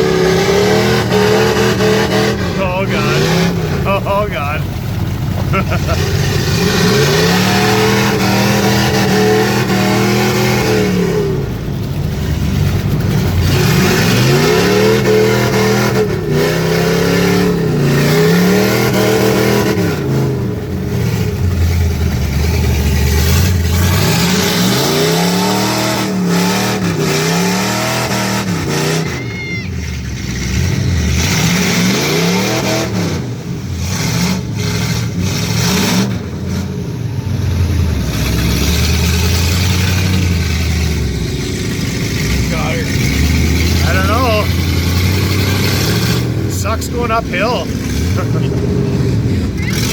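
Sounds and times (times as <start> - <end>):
truck engine revving hard: 0.0 - 49.9.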